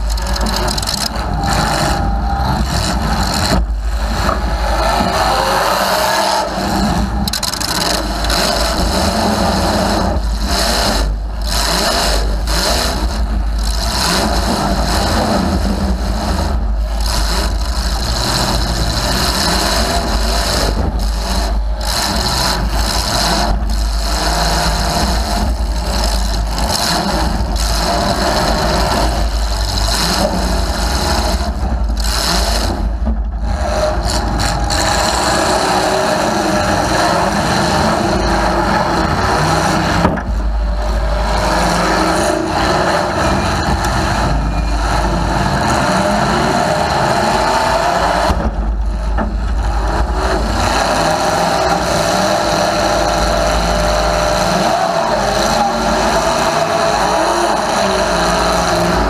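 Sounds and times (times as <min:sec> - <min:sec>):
loud car engine revving: 0:00.0 - 0:59.0.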